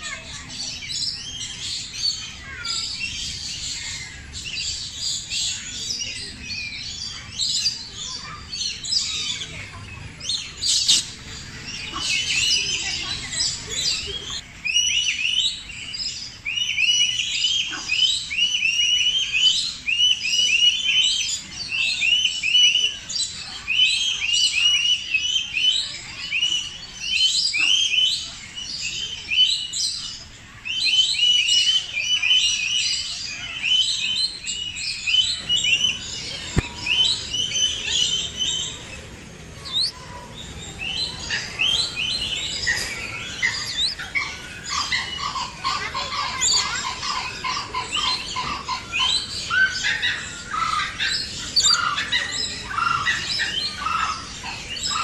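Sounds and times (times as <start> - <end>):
many birds chirping: 0.0 - 55.0
short repeated bird call notes: 39.6 - 40.0, 42.8 - 44.0.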